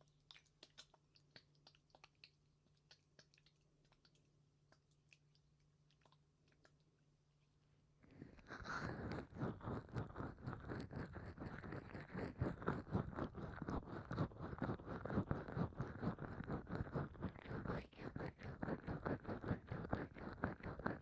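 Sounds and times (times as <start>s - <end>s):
oiled hands rubbing: 8.1s - 21.0s.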